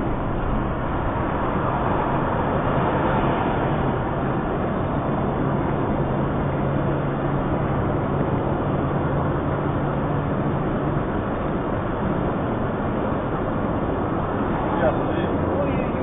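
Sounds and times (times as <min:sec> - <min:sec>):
low steady hum: 0:00.0 - 0:02.8
moving car engine and tyres: 0:00.0 - 0:16.0.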